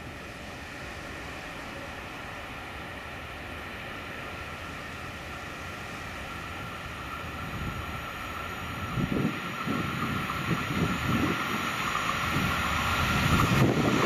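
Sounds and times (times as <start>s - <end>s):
electric locomotive humming: 0.0s - 14.0s.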